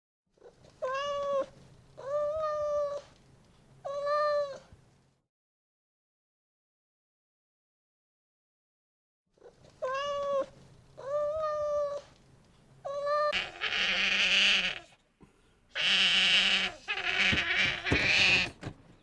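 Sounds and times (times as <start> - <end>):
cat-like animal calls: 12.9 - 15.0, 15.7 - 18.6.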